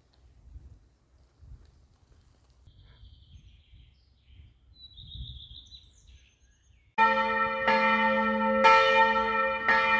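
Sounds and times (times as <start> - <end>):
faint bird chirps: 2.7 - 6.9.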